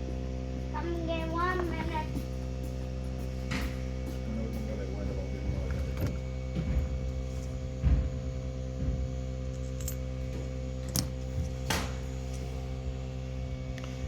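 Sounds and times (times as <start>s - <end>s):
steady hum: 0.0s - 14.0s
small parts and tools clicking: 9.5s - 11.6s.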